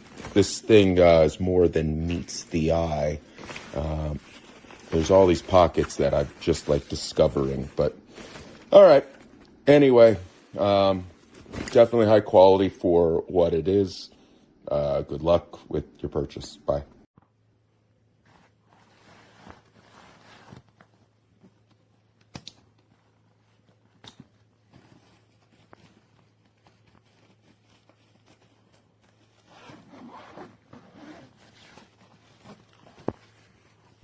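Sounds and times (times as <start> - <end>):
nylon rustling: 0.0 - 1.4, 2.0 - 11.8, 18.2 - 34.0
zippers being worked: 29.4 - 33.1.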